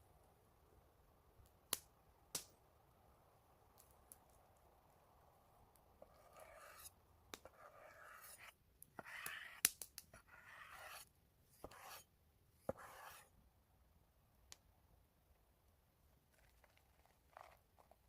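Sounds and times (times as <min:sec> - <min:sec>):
faint scraping and rubbing: 0:06.0 - 0:13.3, 0:16.2 - 0:18.0.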